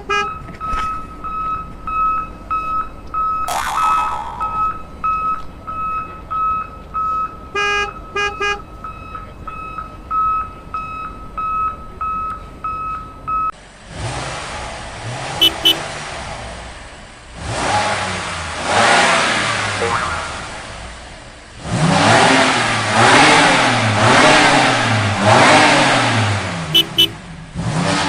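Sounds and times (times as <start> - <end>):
rushing vehicle engine: 0.0 - 28.0
vehicle reversing beeper: 0.3 - 3.5, 4.4 - 13.5
horn toots: 15.3 - 15.9, 26.7 - 27.3.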